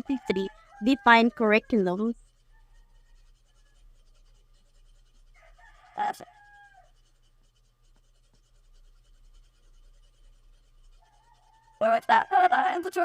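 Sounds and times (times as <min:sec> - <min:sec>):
rooster crowing: 0:00.0 - 0:01.8, 0:02.5 - 0:03.8, 0:05.4 - 0:07.0, 0:11.0 - 0:12.0.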